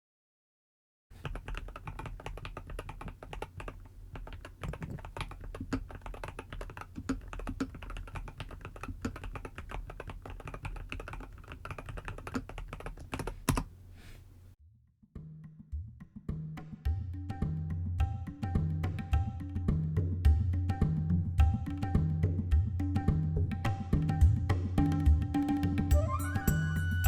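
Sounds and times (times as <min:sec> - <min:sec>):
mechanical keyboard typing: 0:01.2 - 0:13.8.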